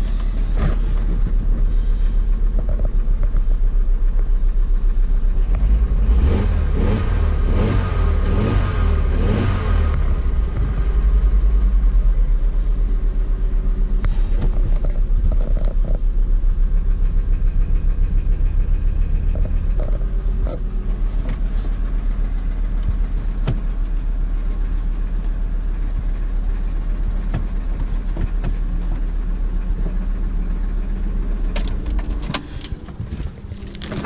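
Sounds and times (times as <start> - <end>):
petrol engine running with knock: 0.0 - 6.0, 13.8 - 24.0, 25.2 - 26.4, 27.0 - 30.1.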